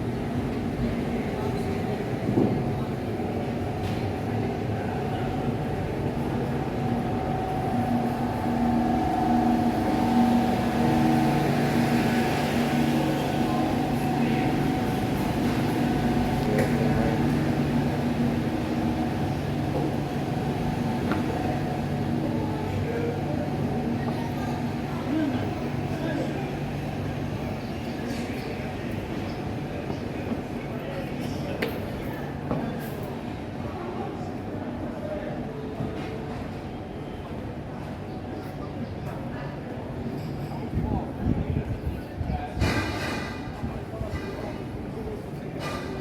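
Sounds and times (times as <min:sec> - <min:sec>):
city street noise: 0:00.0 - 0:46.0
steady machine drone: 0:05.3 - 0:21.0.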